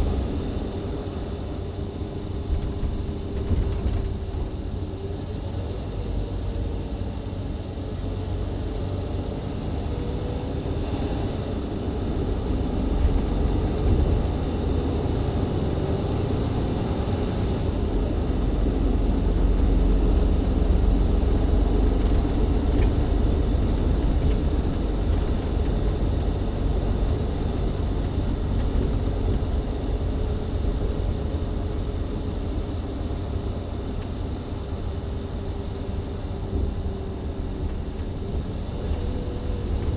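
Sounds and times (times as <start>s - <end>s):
bus engine running: 0.0s - 39.9s
road noise rumble: 0.0s - 39.9s
light clicks and rattles: 2.2s - 4.8s, 11.9s - 14.5s, 18.2s - 31.8s.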